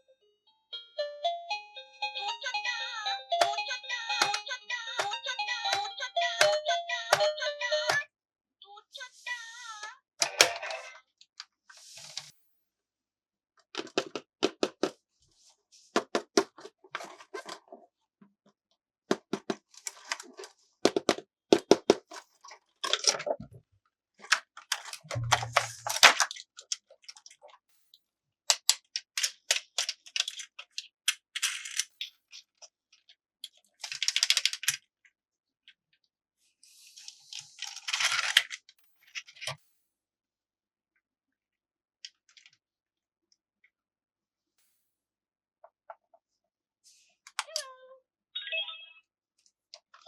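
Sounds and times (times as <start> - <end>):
plastic pieces clicking and rattling: 13.8 - 15.0, 22.8 - 23.4, 24.2 - 27.5, 28.6 - 32.7, 33.4 - 34.8, 37.3 - 39.6.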